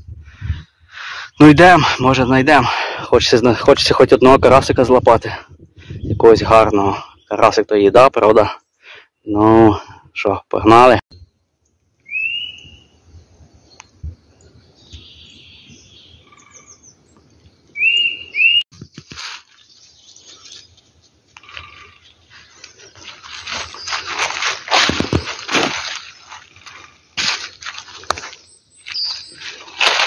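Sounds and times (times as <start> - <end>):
bird's rising chirps: 11.1 - 20.8, 21.4 - 27.2, 28.0 - 30.0
footsteps through undergrowth: 18.7 - 30.0.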